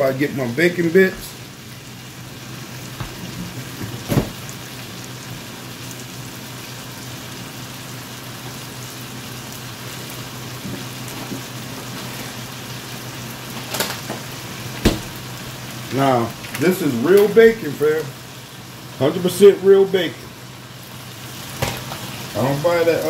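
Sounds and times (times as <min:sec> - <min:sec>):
vegetables sizzling in a skillet: 0:00.1 - 0:23.0.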